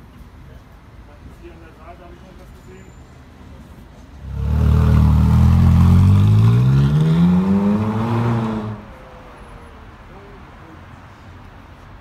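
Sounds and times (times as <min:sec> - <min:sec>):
sports car engine accelerating: 0:04.2 - 0:08.8.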